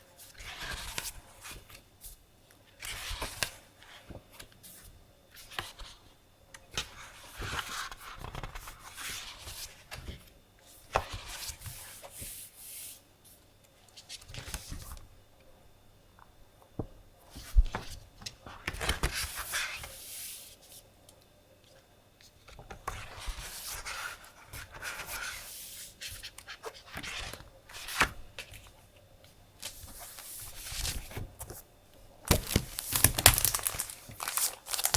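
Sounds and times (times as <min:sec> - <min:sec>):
paper rustling: 0:32.2 - 0:34.9.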